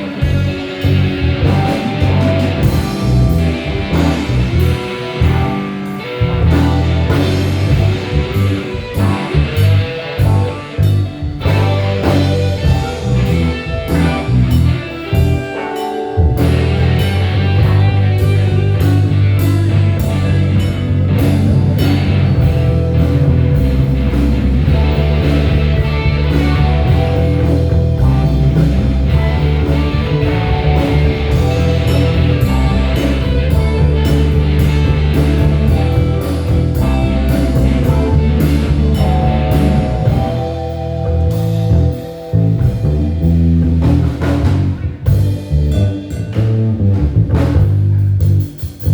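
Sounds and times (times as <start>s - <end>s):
drum kit: 0.0s - 48.9s
electric bass: 0.0s - 48.9s
electric guitar: 0.0s - 48.9s.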